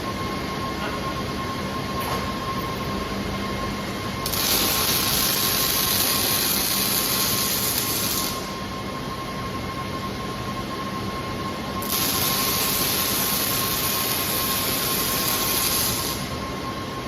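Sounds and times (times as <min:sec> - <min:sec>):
machine hum with faint whine: 0:00.0 - 0:17.0
welding arc hissing: 0:04.2 - 0:08.6, 0:11.8 - 0:16.4.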